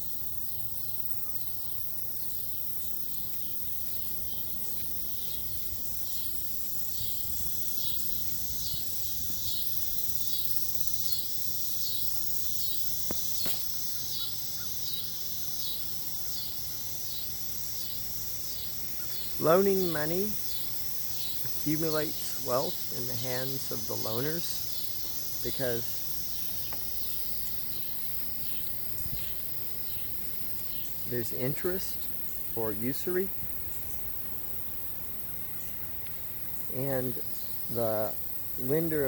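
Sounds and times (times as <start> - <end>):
insect buzzing: 0.0 - 39.0
faint ticks: 33.9 - 36.7.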